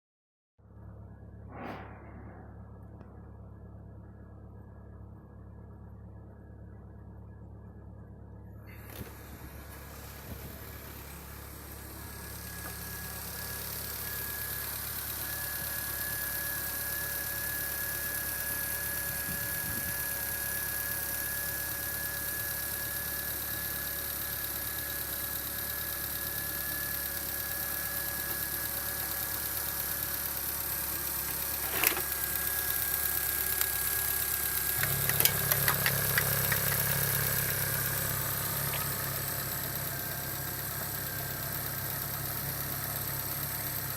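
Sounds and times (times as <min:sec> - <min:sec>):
car engine idling: 0:00.6 - 0:01.5, 0:02.4 - 0:43.9.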